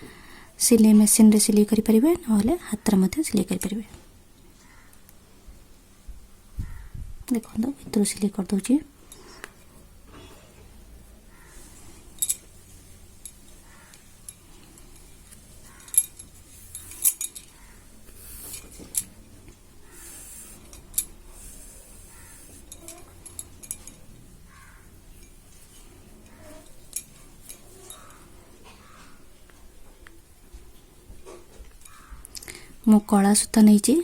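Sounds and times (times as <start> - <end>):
cloth rustling: 19.8 - 24.0.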